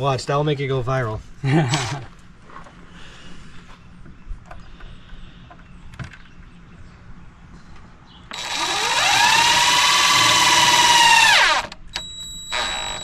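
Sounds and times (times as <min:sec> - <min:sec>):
power drill whining: 0:01.7 - 0:02.0, 0:08.3 - 0:13.0.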